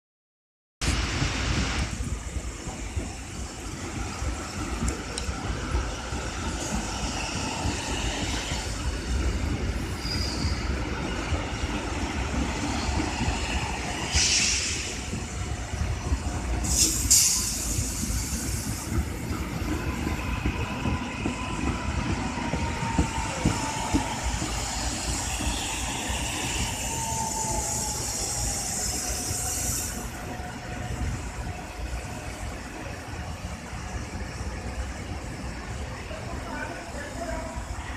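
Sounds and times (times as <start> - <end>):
train wheels rumbling on rails: 0.8 - 37.9
short hissing bursts: 16.6 - 18.9.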